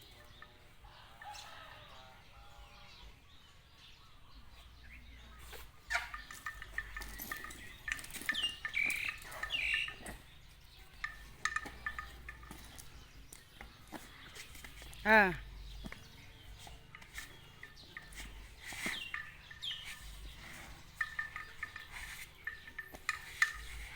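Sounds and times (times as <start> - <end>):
birds chirping: 0.0 - 23.9.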